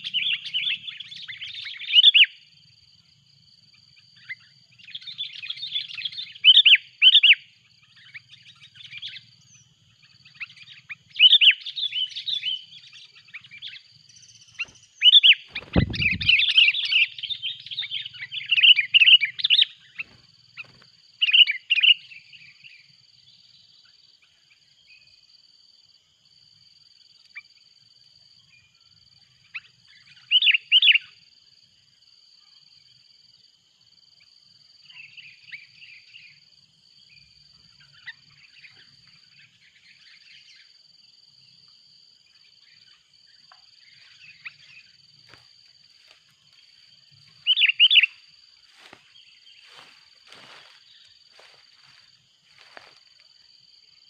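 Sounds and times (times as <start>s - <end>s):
birds chattering calls: 4.2s - 22.2s, 47.2s - 52.0s
low thump: 15.6s - 16.4s.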